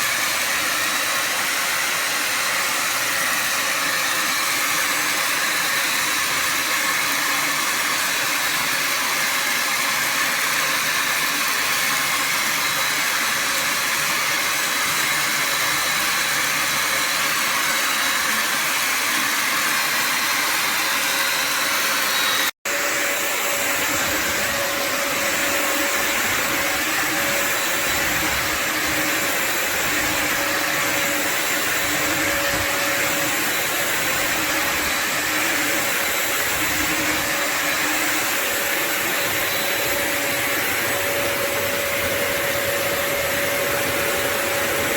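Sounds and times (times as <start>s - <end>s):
vacuum motor whirring: 0.0s - 44.9s
steady whine: 22.7s - 44.9s.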